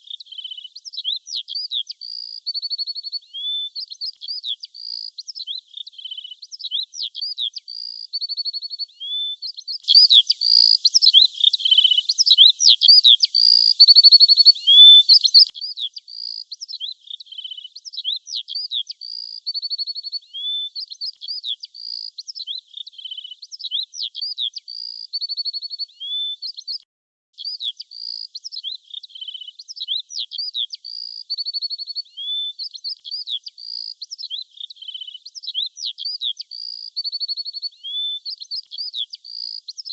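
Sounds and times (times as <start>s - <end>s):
small songbirds chirping: 0.0s - 26.8s, 27.4s - 39.9s.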